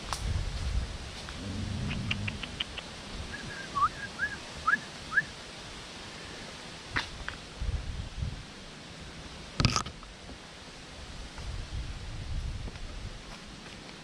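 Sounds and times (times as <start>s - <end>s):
bird chirping: 1.4s - 4.4s.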